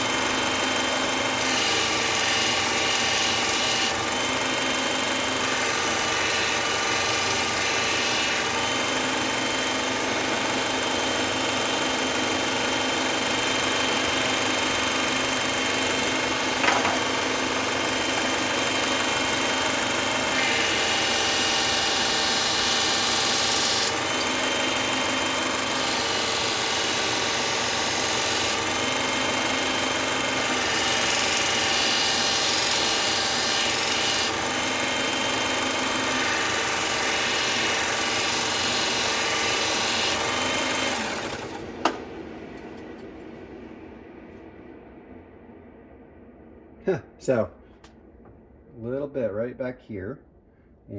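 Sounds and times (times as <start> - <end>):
powered knife sharpener grinding blade: 0.0 - 41.7.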